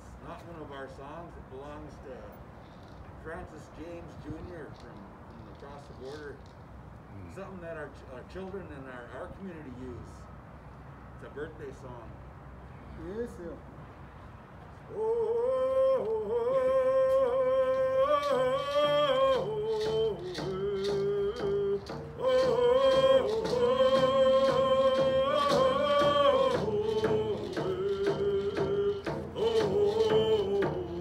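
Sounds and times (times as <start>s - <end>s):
group singing a birthday song: 14.9s - 31.0s
steady beat: 17.6s - 31.0s.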